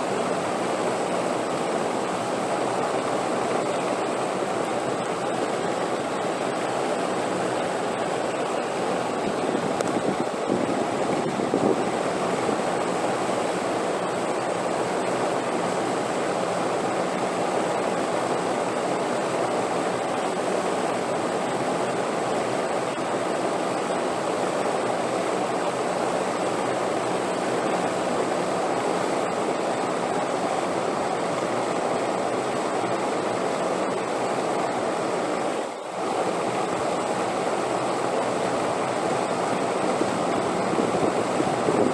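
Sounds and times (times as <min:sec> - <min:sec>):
steady wind rushing: 0:03.9 - 0:14.3, 0:38.4 - 0:41.9.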